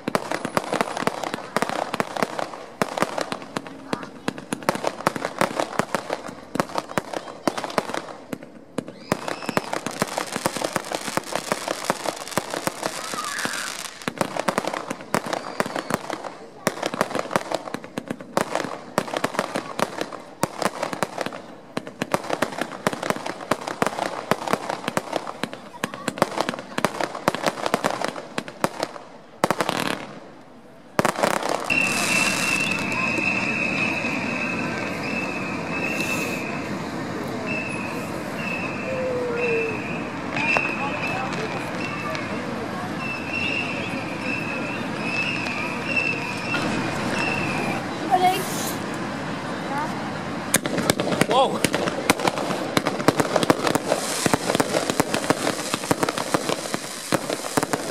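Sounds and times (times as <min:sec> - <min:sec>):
fireworks bangs and pops: 0:00.0 - 0:57.9
fireworks crackling: 0:00.0 - 0:57.9
hiss: 0:35.8 - 0:36.6, 0:47.6 - 0:48.9, 0:53.8 - 0:57.9.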